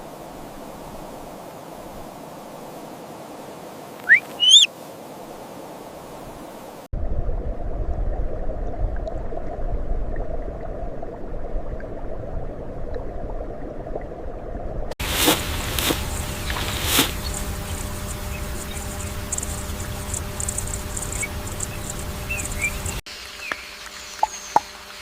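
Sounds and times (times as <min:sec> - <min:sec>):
rising animal calls: 0:04.0 - 0:04.7
low rumbling noise: 0:07.0 - 0:23.0
outdoor ambience: 0:12.8 - 0:25.0.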